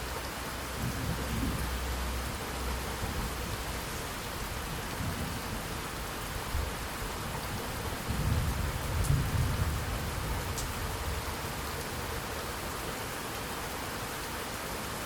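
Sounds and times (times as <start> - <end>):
rain falling: 0.0 - 15.0
low thunder rumble: 4.4 - 12.2.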